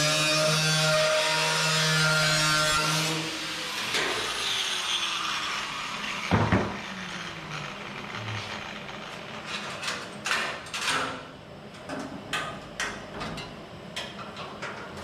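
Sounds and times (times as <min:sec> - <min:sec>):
power tool running and winding down: 0:02.8 - 0:09.5.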